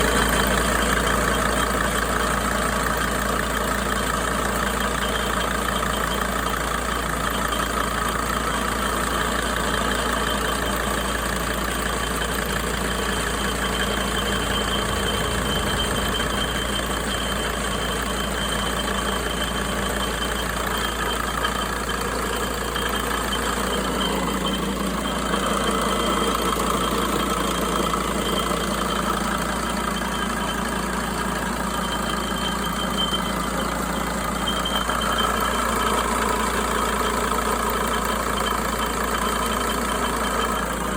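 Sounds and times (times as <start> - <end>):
van engine idling: 0.0 - 40.9
thin high-pitched whistle: 12.9 - 21.7.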